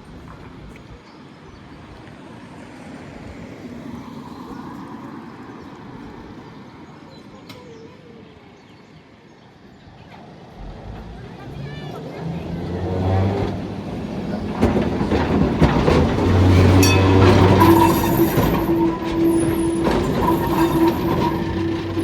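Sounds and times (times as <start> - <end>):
tram rumbling on track: 9.9 - 22.0.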